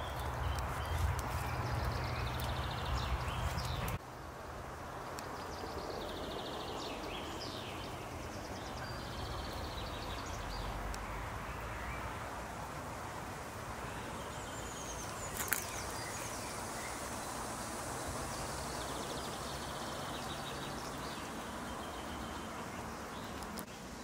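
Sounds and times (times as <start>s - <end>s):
background hiss: 0.0s - 24.0s
small birds singing: 0.0s - 24.0s.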